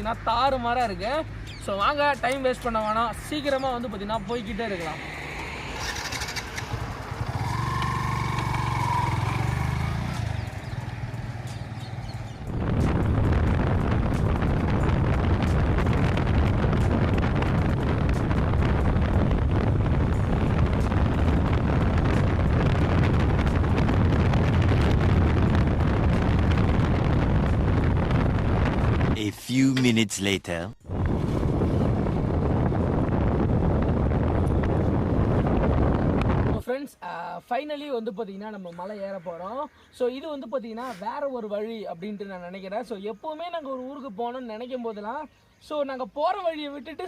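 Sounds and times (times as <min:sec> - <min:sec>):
motorcycle engine cruising: 0:05.4 - 0:29.1
wind buffeting microphone: 0:05.4 - 0:29.2, 0:30.8 - 0:36.6
motorcycle engine running: 0:05.8 - 0:15.0.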